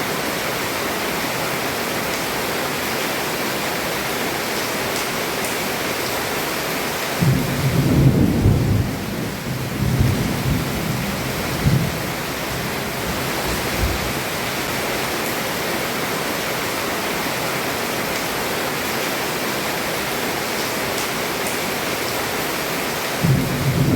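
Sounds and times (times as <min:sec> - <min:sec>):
heavy rain on a roof: 0:00.0 - 0:23.9
thunder rumbling: 0:07.2 - 0:14.3, 0:23.2 - 0:23.9.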